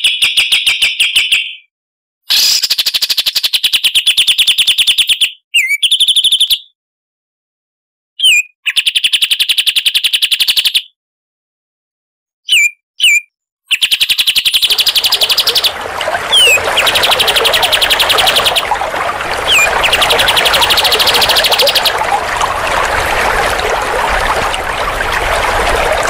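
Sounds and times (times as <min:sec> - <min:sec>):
bird call notes: 0:14.6 - 0:25.9.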